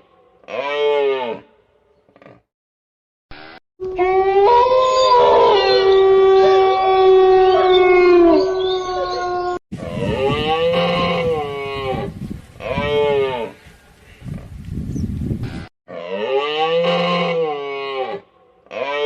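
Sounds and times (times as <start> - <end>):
animal howl-like calls: 3.8 - 11.6.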